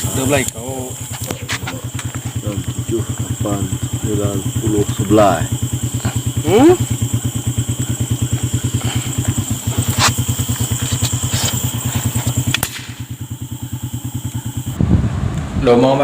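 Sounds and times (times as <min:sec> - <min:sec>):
small engine idling: 0:00.0 - 0:15.4
sharp click: 0:12.5 - 0:13.0.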